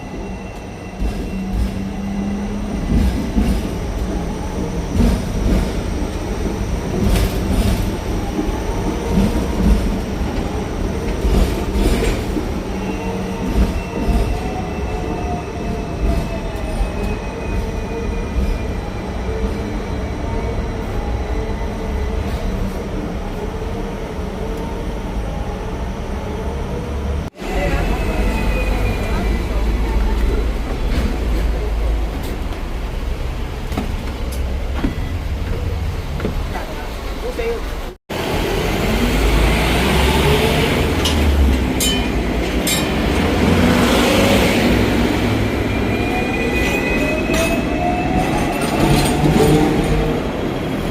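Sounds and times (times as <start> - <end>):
tram rumbling: 0.0 - 50.9
tram wheels clacking: 1.0 - 15.2, 40.6 - 45.7.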